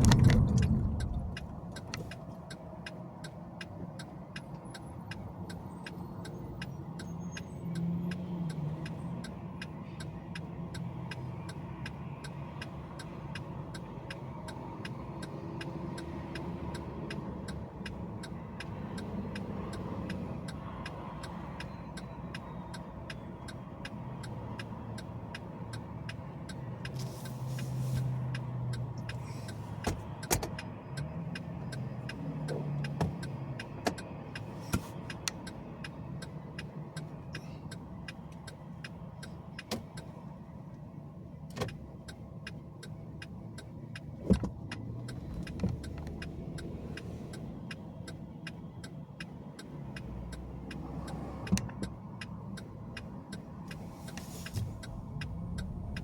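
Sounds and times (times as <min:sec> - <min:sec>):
car engine and road noise: 0:00.0 - 0:56.0
faint ticks: 0:41.7 - 0:56.0.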